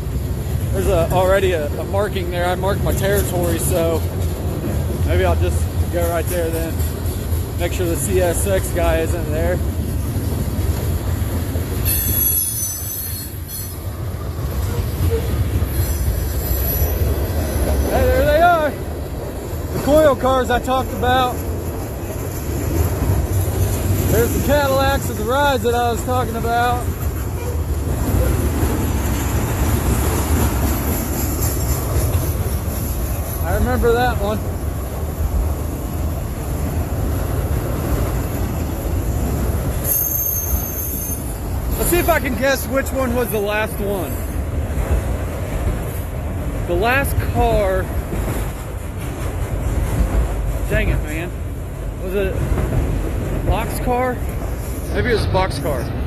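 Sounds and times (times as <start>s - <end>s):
train cars rumbling past: 0.0s - 56.0s
train wheels squealing: 11.8s - 13.9s, 14.6s - 18.2s, 39.8s - 42.3s.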